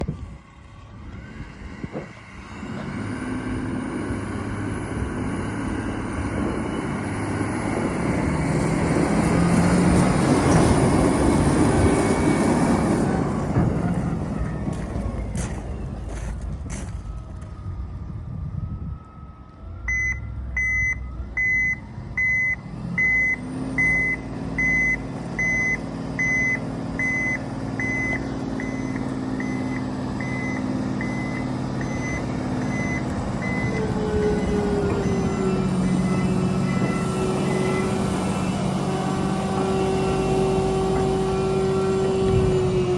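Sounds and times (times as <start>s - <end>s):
diesel engine running: 0.0s - 42.9s
reversing alarm beeping: 18.5s - 39.0s.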